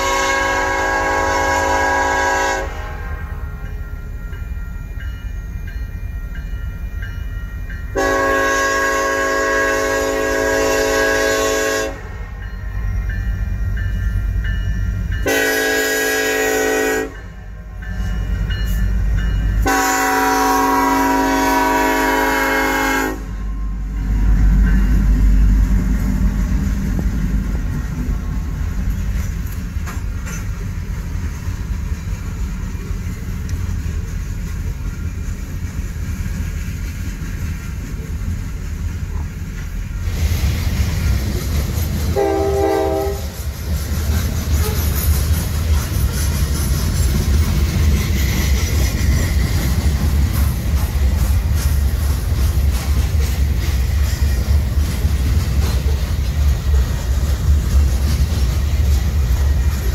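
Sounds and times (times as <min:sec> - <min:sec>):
locomotive horn blasts: 0:00.0 - 0:03.5, 0:08.0 - 0:12.1, 0:15.2 - 0:17.4, 0:19.6 - 0:23.7, 0:42.2 - 0:43.4
locomotive passing rumble: 0:00.0 - 0:59.9
freight cars clickety-clack: 0:23.8 - 0:59.9.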